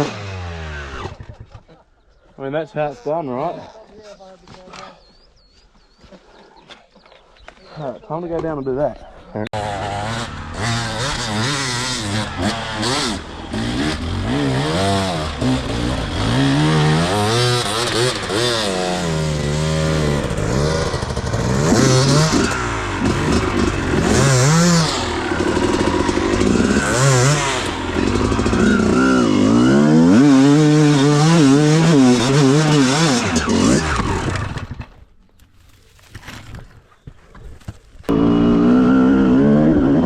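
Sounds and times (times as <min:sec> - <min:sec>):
dirt bike engine revving: 0:00.0 - 0:01.3, 0:09.6 - 0:34.9, 0:38.1 - 0:40.0.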